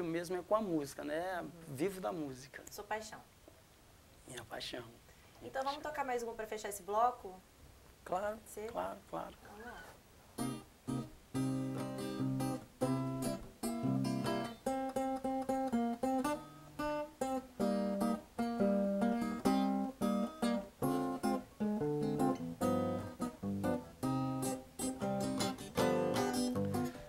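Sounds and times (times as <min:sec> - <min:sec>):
acoustic guitar strumming chords: 0:10.4 - 0:27.0.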